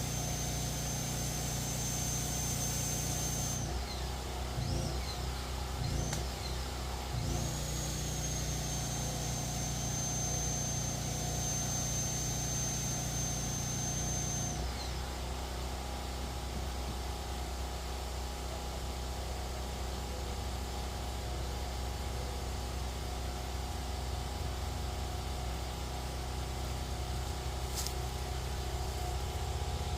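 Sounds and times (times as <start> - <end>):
thin high whine: 0.0 - 15.4
engine running: 0.0 - 29.9.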